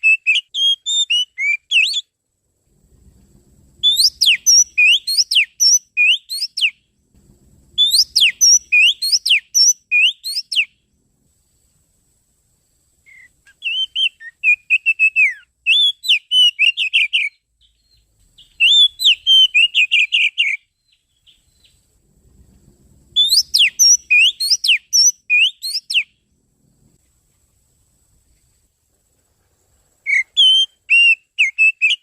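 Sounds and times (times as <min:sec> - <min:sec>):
bird singing whistled trills: 0:00.0 - 0:02.1, 0:03.8 - 0:06.9, 0:07.8 - 0:10.8, 0:13.0 - 0:21.9, 0:23.1 - 0:26.3, 0:30.0 - 0:32.0.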